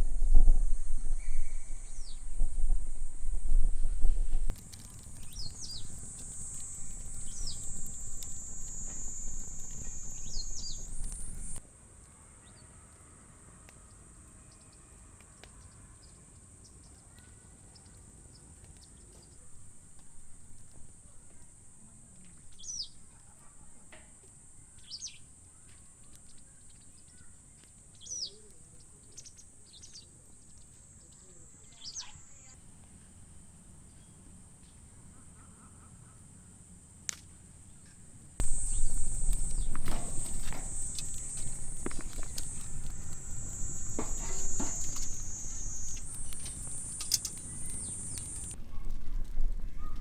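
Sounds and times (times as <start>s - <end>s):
low rumble: 0.0s - 4.6s
falling bird calls: 4.4s - 11.6s, 38.4s - 48.6s
clicks: 38.4s - 48.6s.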